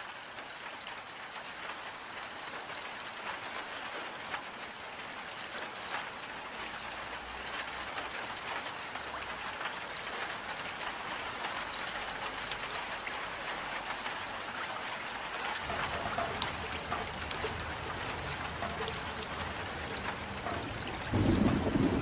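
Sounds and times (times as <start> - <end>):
steady rain falling: 0.0 - 22.0
raindrops ticking: 0.1 - 22.0.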